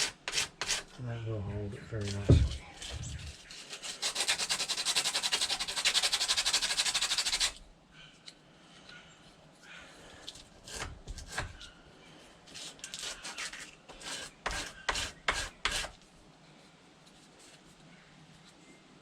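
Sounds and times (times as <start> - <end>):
scraping strokes on wood: 0.0 - 1.0, 1.9 - 7.6, 10.6 - 11.7, 12.5 - 16.0.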